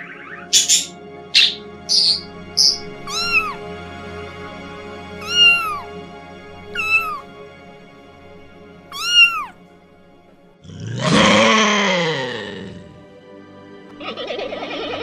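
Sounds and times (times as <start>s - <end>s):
lynx harsh rasping call: 0.0s - 3.7s, 5.2s - 6.0s, 6.7s - 7.3s, 8.9s - 9.6s
kitten meowing: 1.9s - 3.6s, 5.2s - 6.0s, 6.7s - 7.3s, 8.9s - 9.6s.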